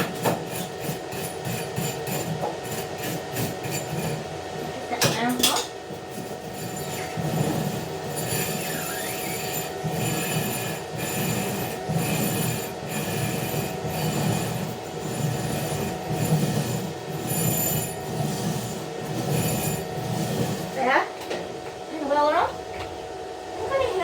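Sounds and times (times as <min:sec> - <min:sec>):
scraping strokes on metal: 0:05.0 - 0:21.0.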